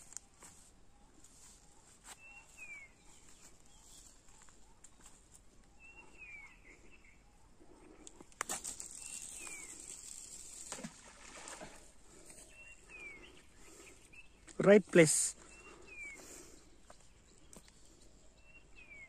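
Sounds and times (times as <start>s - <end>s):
bird calling with downward slur: 8.7s - 11.8s.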